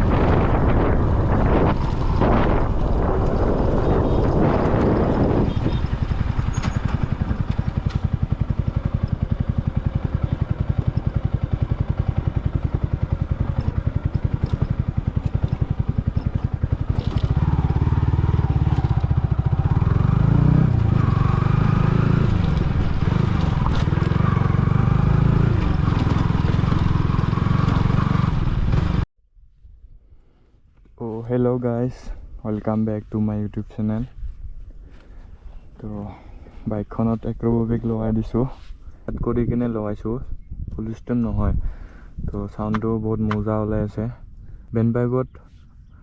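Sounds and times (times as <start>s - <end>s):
motorcycle engine idling and revving: 0.0s - 29.1s.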